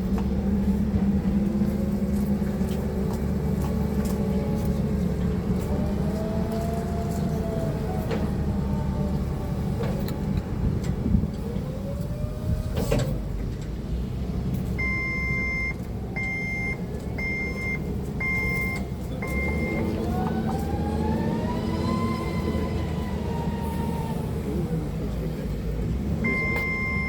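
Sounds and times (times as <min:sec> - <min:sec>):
forklift reversing alarm: 0:14.8 - 0:24.2, 0:26.2 - 0:27.0
forklift motor whine: 0:18.2 - 0:25.1.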